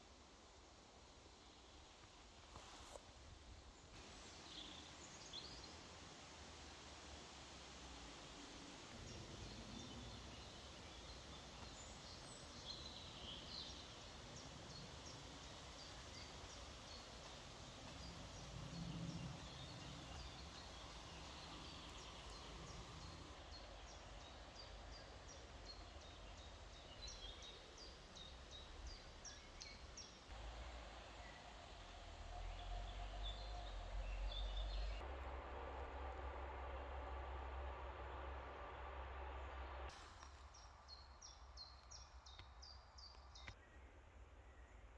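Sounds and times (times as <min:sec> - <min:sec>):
steady background hiss: 0:00.0 - 0:41.7
birds chirping: 0:09.2 - 0:23.3.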